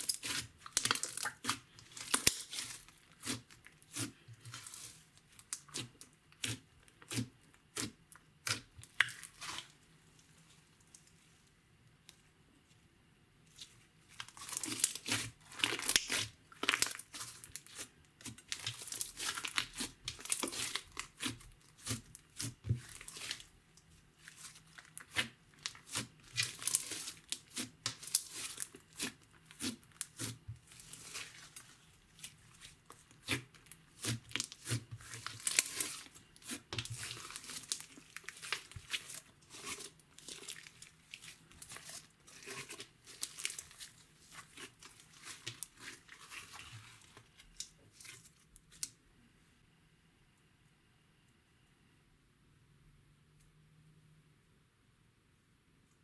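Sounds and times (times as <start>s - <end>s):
slime crackling and popping: 0.0s - 9.7s, 14.1s - 23.5s, 24.2s - 48.9s.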